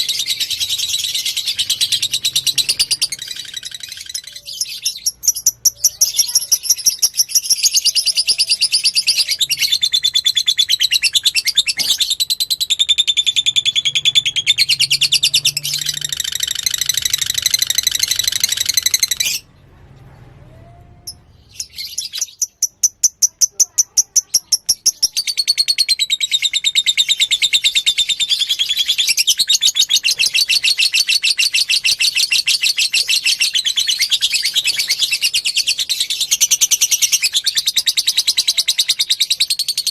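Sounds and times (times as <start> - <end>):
lovebird chattering trills: 21.1 - 39.9.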